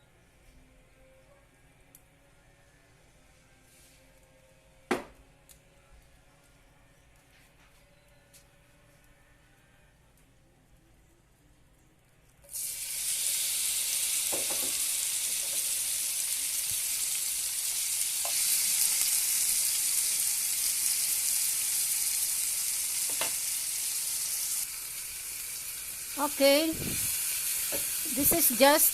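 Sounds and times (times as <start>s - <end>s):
scallops sizzling in oil: 12.5s - 28.9s.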